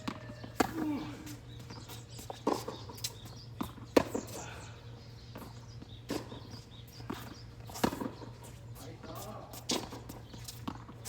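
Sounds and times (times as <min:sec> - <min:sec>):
ball bouncing on court: 0:00.0 - 0:00.9
rackets striking tennis ball: 0:00.0 - 0:01.0, 0:07.1 - 0:08.3.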